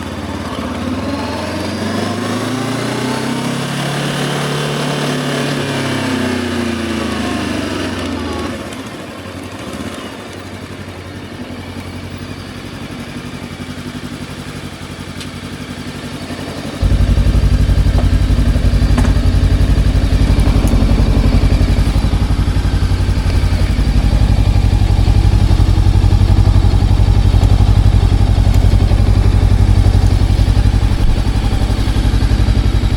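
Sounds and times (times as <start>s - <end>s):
motorcycle engine slowing down: 0.0s - 32.9s
loud low rumble: 16.8s - 32.9s.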